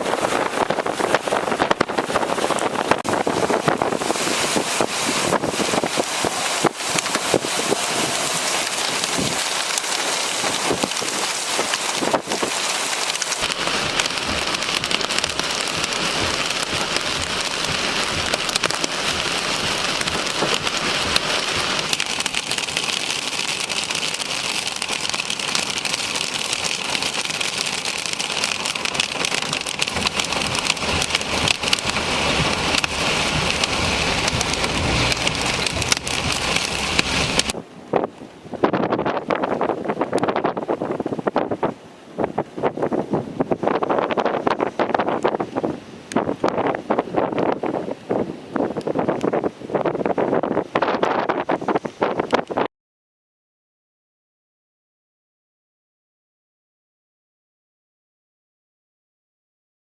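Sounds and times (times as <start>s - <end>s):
heavy rain falling: 0.0s - 37.6s.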